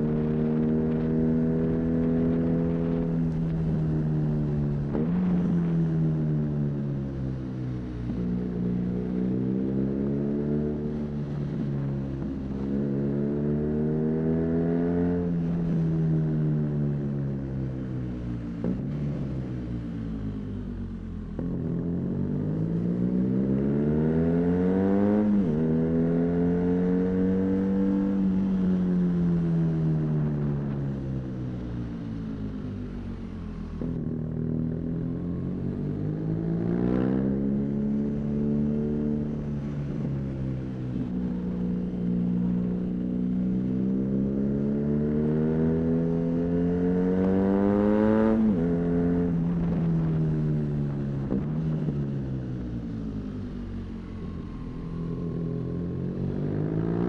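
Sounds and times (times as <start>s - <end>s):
motorcycle engine accelerating: 0.0s - 7.4s, 21.3s - 57.0s.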